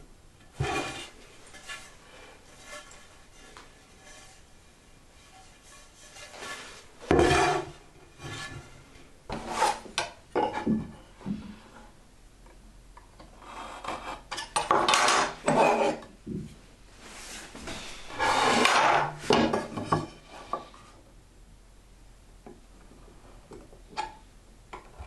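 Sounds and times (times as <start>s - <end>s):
wood rubbing and scraping: 0.5s - 10.7s, 17.0s - 20.9s.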